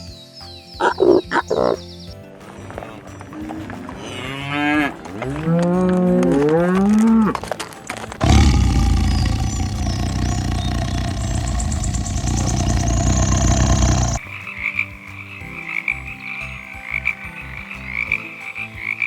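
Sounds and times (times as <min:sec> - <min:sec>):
cattle mooing: 0:08.2 - 0:14.2
dense steady noise: 0:08.2 - 0:14.2.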